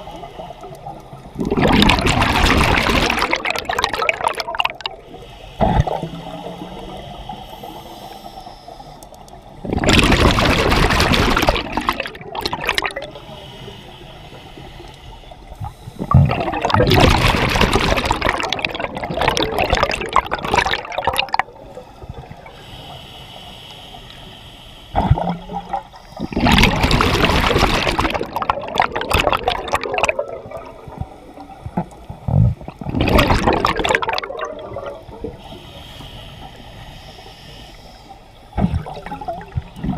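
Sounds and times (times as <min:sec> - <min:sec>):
exhaled bubbles rushing: 0:01.2 - 0:05.0, 0:05.6 - 0:06.1, 0:09.6 - 0:13.1, 0:16.0 - 0:21.6, 0:25.0 - 0:31.0, 0:31.8 - 0:35.4, 0:38.6 - 0:39.9
diver breathing through regulator: 0:05.0 - 0:09.5, 0:13.0 - 0:16.6, 0:21.7 - 0:26.9, 0:34.8 - 0:39.8.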